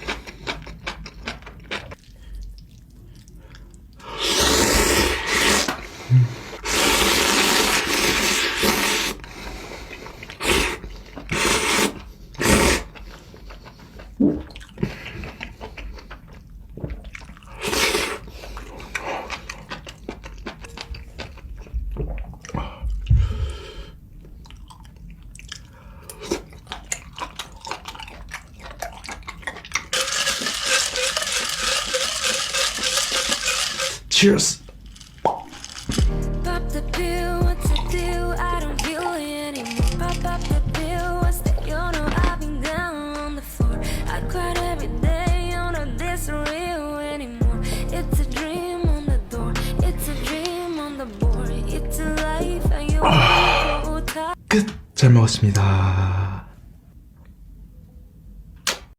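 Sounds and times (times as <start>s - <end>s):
slurping noodles: 0.0s - 2.9s, 4.0s - 16.3s, 16.9s - 22.6s, 25.4s - 34.2s, 37.7s - 42.8s, 53.0s - 54.0s
chewing: 0.0s - 4.2s, 6.5s - 23.2s, 24.2s - 34.1s, 37.0s - 46.8s
liquid pouring: 27.0s - 34.2s, 34.8s - 36.0s.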